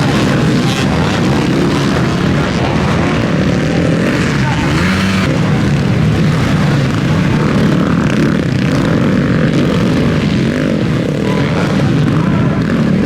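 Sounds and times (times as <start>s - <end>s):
motocross bikes revving: 0.0s - 13.0s.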